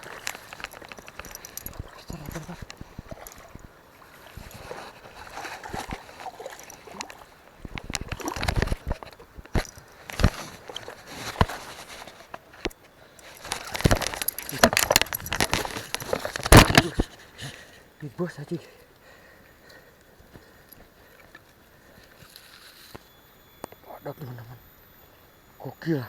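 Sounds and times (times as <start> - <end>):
water splashing and sloshing: 0.0 - 17.4.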